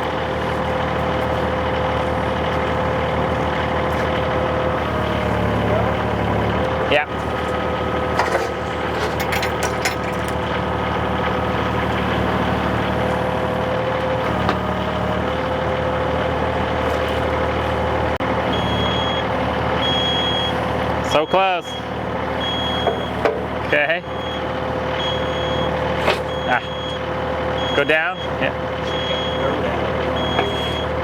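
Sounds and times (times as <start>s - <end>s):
excavator diesel engine running: 0.0s - 31.0s
light metal clanks: 8.1s - 10.5s
backup alarm beeping: 18.5s - 23.2s, 24.0s - 31.0s.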